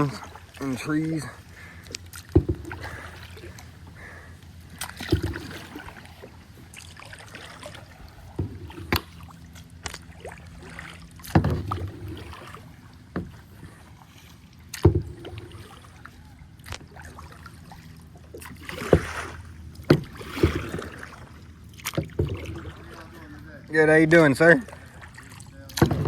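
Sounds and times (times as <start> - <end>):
paddle strokes through water: 0.0 - 26.0
paddle knocking on kayak: 1.5 - 13.9, 14.7 - 16.0, 18.3 - 23.3, 25.7 - 26.0.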